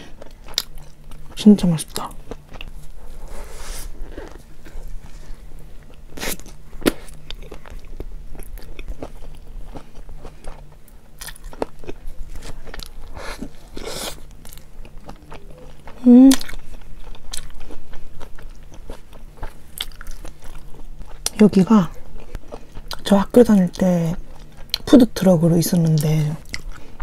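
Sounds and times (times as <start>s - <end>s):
biting and chewing food: 0.1s - 24.9s.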